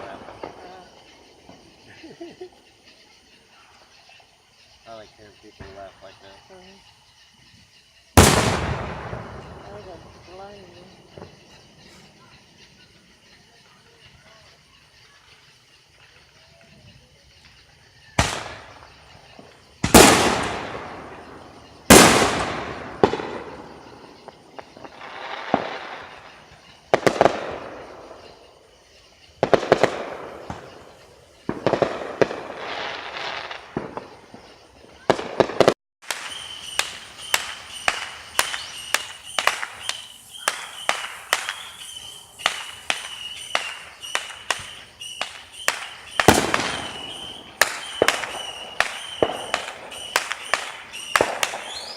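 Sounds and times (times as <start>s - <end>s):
fireworks booming: 0.0s - 14.6s, 15.2s - 51.9s
sharp firework cracks: 8.1s - 12.4s, 17.5s - 28.4s, 29.3s - 51.9s.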